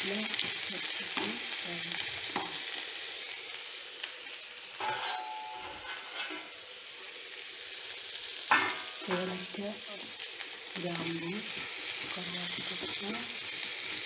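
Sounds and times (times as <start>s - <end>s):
onions sizzling in hot oil: 0.0s - 14.0s
metal spoon clinking: 4.8s - 6.6s.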